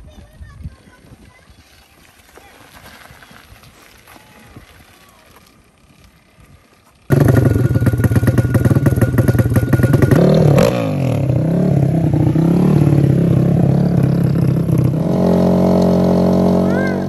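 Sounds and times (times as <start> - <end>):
atv engine running: 4.7 - 17.0.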